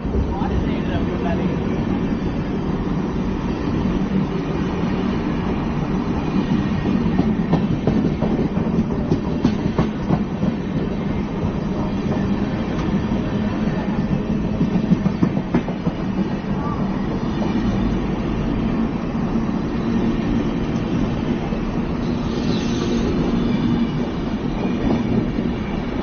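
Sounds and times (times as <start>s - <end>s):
train wheels rumbling on rail: 0.0s - 26.0s
wheels clacking over rail joints: 6.8s - 10.9s, 14.0s - 16.2s.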